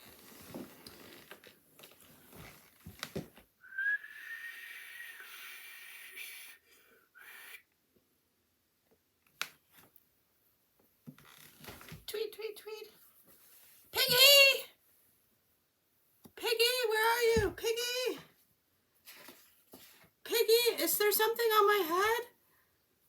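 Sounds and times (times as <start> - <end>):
person whistling: 3.6 - 6.4.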